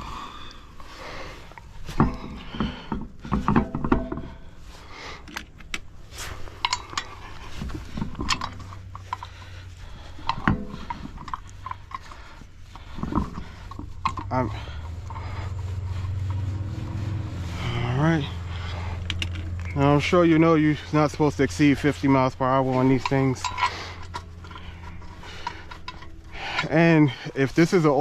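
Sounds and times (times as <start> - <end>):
steady low hum: 0.0 - 28.0
metal tools clinking and knocking: 1.5 - 4.6, 5.2 - 15.6, 16.2 - 28.0.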